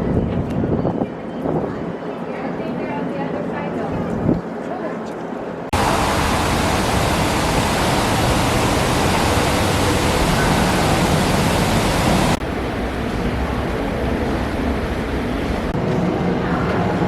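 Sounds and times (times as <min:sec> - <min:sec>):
quieter steady noise: 0:05.7 - 0:15.8
loud steady rushing noise: 0:05.7 - 0:16.3.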